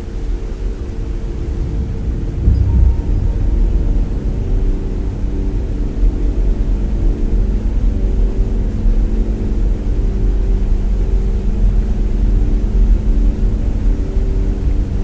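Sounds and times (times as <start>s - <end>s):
heavy low rumble: 0.0s - 8.8s
drone propellers humming: 0.2s - 7.6s.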